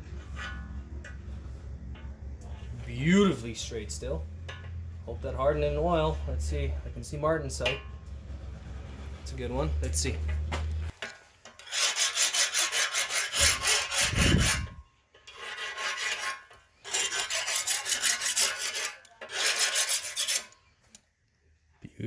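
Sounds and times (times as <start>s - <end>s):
file scraping steel blade: 11.4s - 21.0s.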